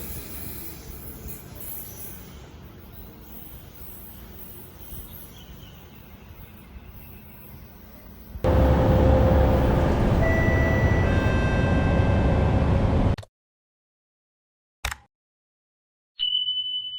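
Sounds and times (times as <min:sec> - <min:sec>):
train passing close: 0:00.0 - 0:13.2
whining tones: 0:08.5 - 0:13.2.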